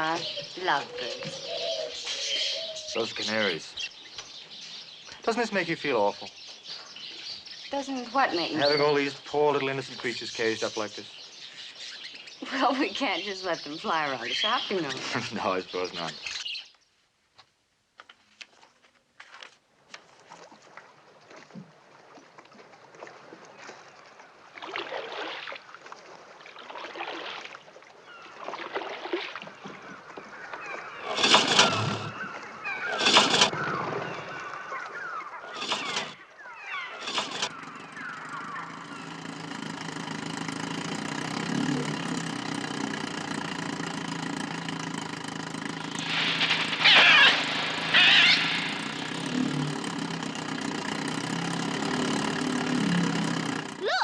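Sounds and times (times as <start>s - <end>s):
harsh bird cries: 0.0s - 5.3s, 9.8s - 15.0s, 30.3s - 39.4s, 46.0s - 49.7s
small motor running: 31.0s - 32.3s, 32.9s - 33.7s, 35.5s - 54.0s.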